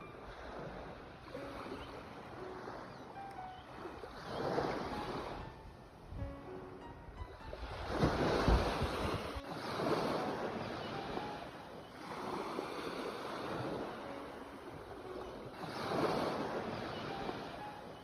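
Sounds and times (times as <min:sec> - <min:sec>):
ocean waves breaking: 0:00.0 - 0:18.0.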